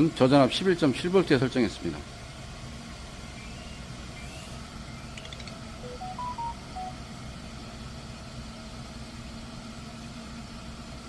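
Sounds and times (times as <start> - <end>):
electronic beeps melody: 5.2 - 7.0.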